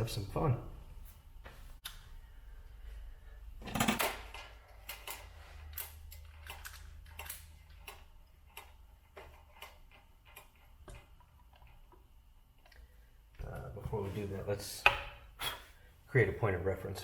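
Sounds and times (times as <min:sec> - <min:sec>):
metal hardware clicking and clattering: 0:03.6 - 0:11.8.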